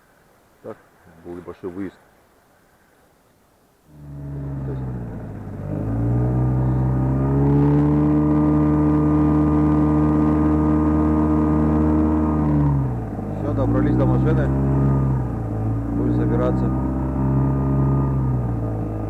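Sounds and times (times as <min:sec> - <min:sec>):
outboard motor running: 0:03.9 - 0:19.0.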